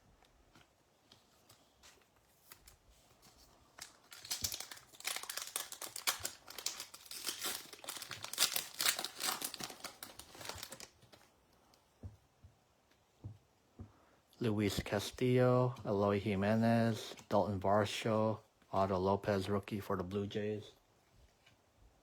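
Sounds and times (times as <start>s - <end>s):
foil wrapper tearing and crinkling: 3.7s - 11.0s.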